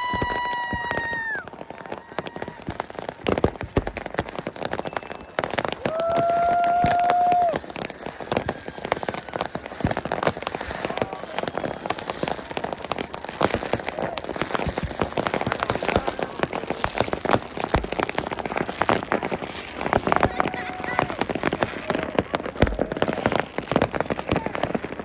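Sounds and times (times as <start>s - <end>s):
fireworks crackling: 0.0s - 25.0s
loud firework bangs: 0.0s - 25.0s.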